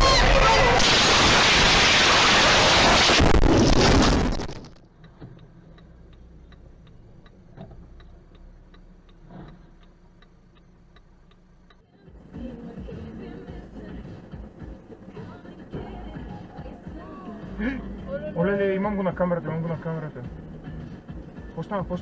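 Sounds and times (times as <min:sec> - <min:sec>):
loud rushing noise: 0:00.0 - 0:04.8
low engine hum: 0:03.3 - 0:22.0
turn signal clicking: 0:04.7 - 0:22.0.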